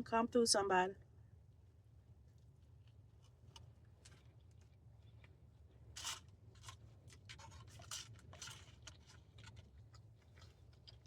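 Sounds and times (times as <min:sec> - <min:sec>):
food rustles and scrapes: 0:05.9 - 0:11.0.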